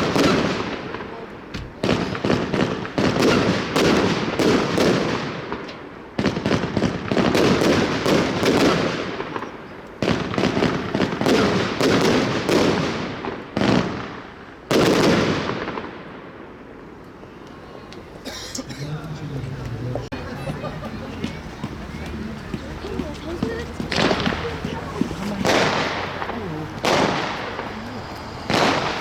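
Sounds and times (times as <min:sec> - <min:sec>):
firework battery firing volleys: 0:23.4 - 0:29.0.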